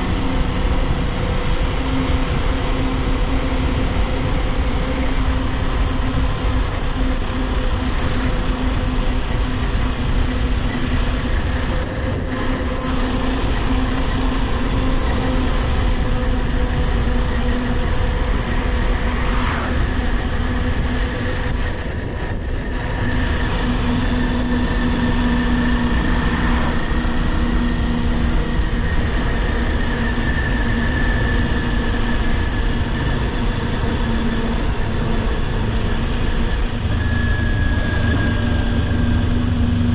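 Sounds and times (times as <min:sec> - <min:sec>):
motorcycle engine running: 0:00.0 - 0:19.1
wind and road rush: 0:00.0 - 0:39.9.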